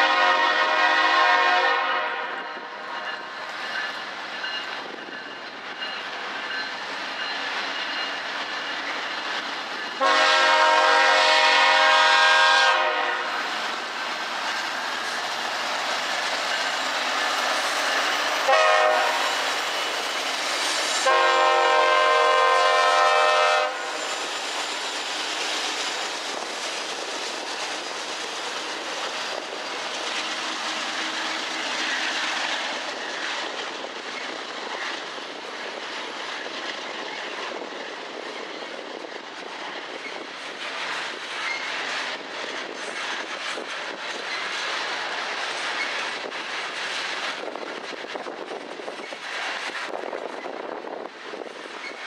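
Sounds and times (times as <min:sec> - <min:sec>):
locomotive air horn blasts: 0:00.0 - 0:02.7, 0:10.0 - 0:13.4, 0:18.4 - 0:19.4, 0:21.0 - 0:24.0
freight cars wheel noise on rails: 0:00.0 - 0:52.0.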